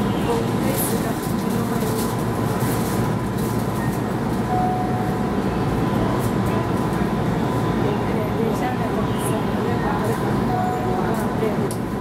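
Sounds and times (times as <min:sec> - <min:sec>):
train cab hum and rumble: 0:00.0 - 0:12.0
faint steady high tone: 0:04.5 - 0:05.2
short brief tone: 0:04.5 - 0:05.2.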